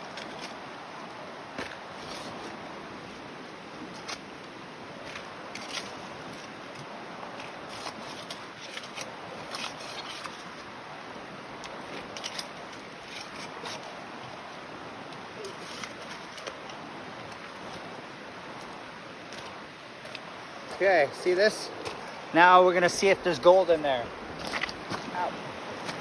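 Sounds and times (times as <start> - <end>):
creek water rushing: 0.0 - 26.0
gravel clicking and scraping: 11.6 - 26.0.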